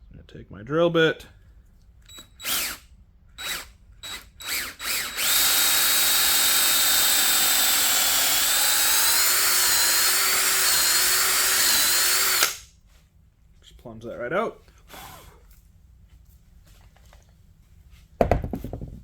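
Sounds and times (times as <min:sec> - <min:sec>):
power drill boring into wood: 0:02.1 - 0:02.8, 0:03.4 - 0:12.6.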